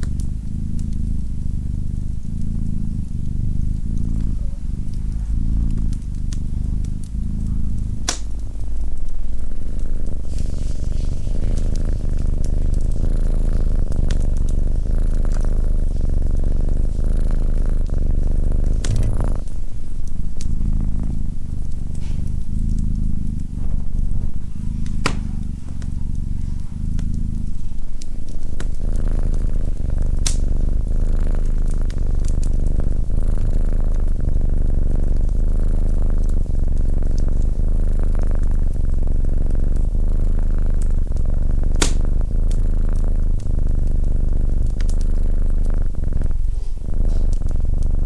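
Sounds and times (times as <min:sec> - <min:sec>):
cat purring: 0:00.0 - 0:48.0
wood fire pops: 0:02.4 - 0:09.4, 0:11.5 - 0:15.4, 0:18.6 - 0:29.3, 0:30.2 - 0:30.8, 0:41.8 - 0:42.3.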